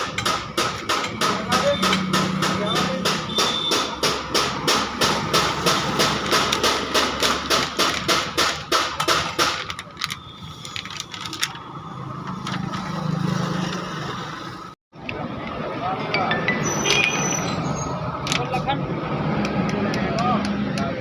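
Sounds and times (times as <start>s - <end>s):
rapid regular knocking: 0.0s - 9.9s.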